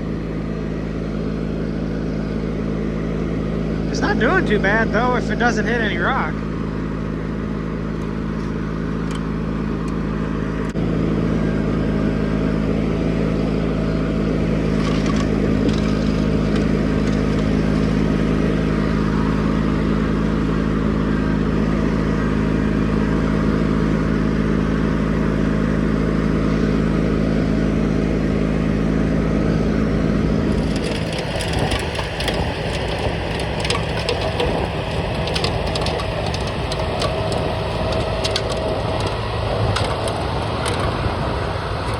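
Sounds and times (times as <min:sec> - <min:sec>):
garden tractor engine running: 0:00.0 - 0:41.9
rough crackling crunching noise: 0:13.3 - 0:20.7, 0:30.1 - 0:41.9.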